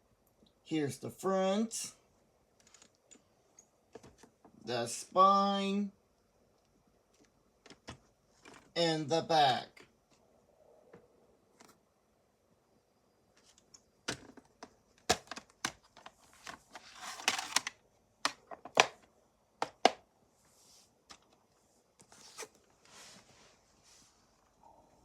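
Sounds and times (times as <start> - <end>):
plastic clicks and knocks: 17.3 - 20.0.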